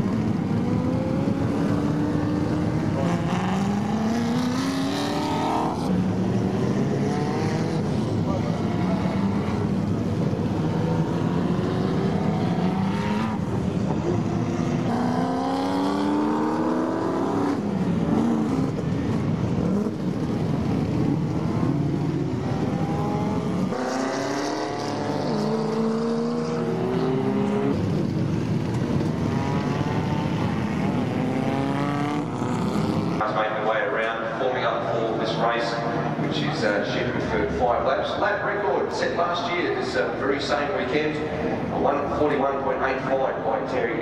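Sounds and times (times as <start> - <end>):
racing cars revving and accelerating: 0.0 - 44.0.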